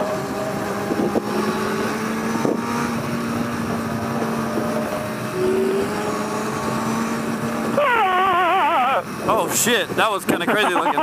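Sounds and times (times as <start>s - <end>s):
wind noise on microphone: 0.3s - 4.9s.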